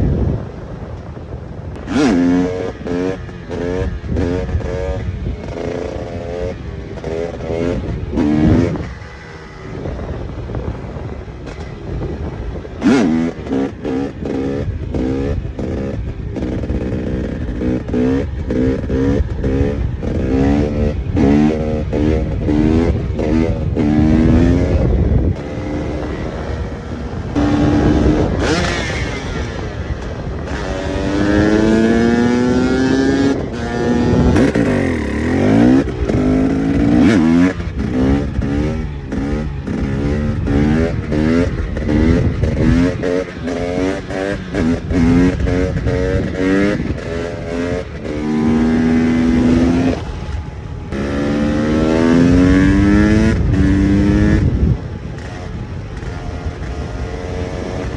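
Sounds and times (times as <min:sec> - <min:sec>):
engine throttle blips: 0:00.0 - 0:57.9
two-stroke engine accelerating: 0:00.0 - 0:57.9.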